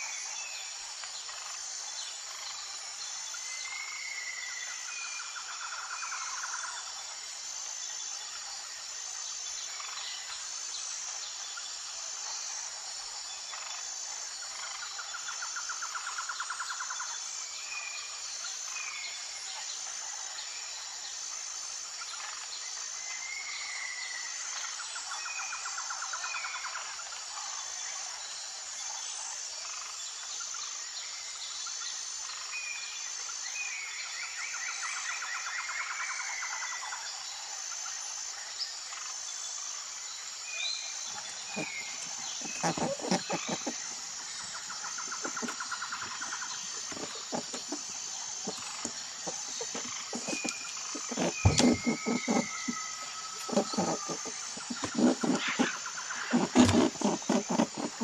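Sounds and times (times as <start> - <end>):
insect chorus: 0.0 - 58.0
small animals trilling and calling: 41.1 - 58.0.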